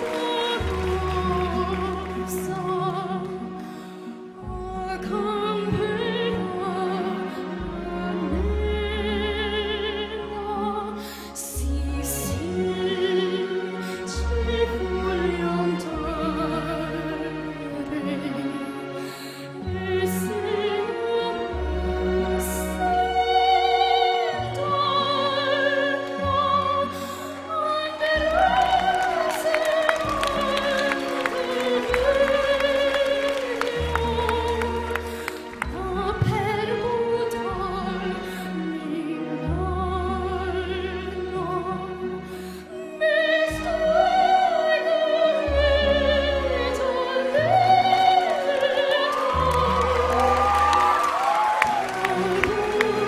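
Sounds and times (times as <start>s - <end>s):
orchestral backing track: 0.0s - 53.0s
girl singing operatic soprano: 4.3s - 19.0s, 19.6s - 42.1s, 42.7s - 53.0s
audience cheering: 28.1s - 34.7s, 48.4s - 53.0s.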